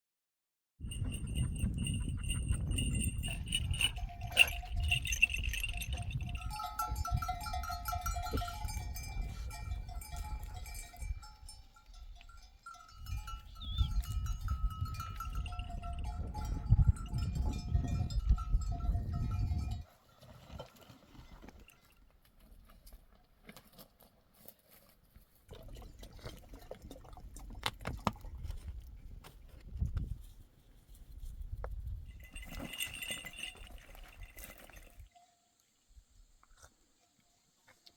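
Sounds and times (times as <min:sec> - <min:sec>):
sheep bells clanking: 0:00.8 - 0:20.0, 0:32.1 - 0:35.5.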